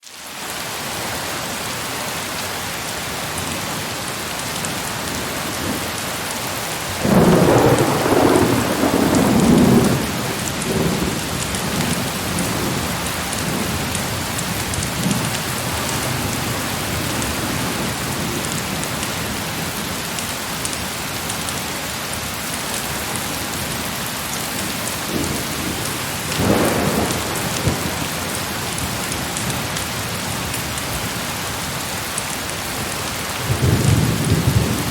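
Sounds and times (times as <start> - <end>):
heavy rain: 0.0 - 34.9
thunder rumbling: 6.8 - 19.8, 24.5 - 31.0, 33.4 - 34.9.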